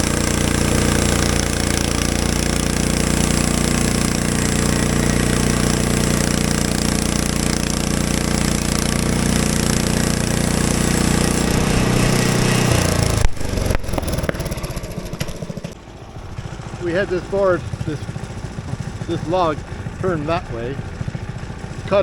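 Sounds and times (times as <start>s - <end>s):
band sawmill engine and blade: 0.0s - 22.0s
sharp knocks: 12.7s - 15.8s.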